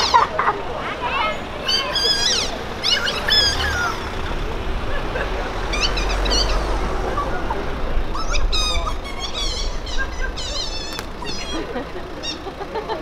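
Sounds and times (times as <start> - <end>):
car engine running low: 0.0 - 13.0
high-pitched wavering squeaks: 8.1 - 12.5.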